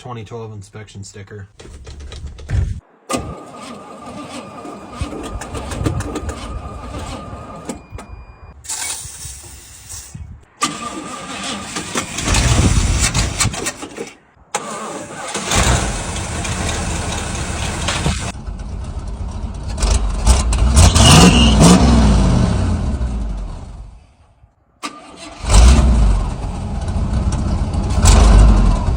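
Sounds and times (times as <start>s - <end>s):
truck engine cranking: 1.5s - 23.8s, 24.8s - 28.9s
truck engine running loudly: 16.2s - 23.5s.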